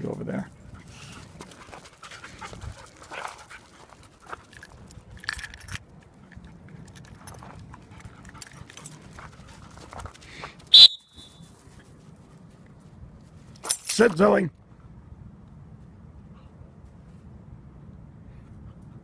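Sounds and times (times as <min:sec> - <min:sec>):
dog whistle blast: 0:10.7 - 0:11.4.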